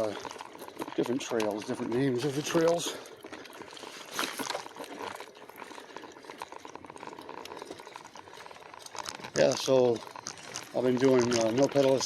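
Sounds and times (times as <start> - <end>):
tyres crackling on dirt: 0.0 - 12.0
faint rapid ticking: 5.4 - 12.0.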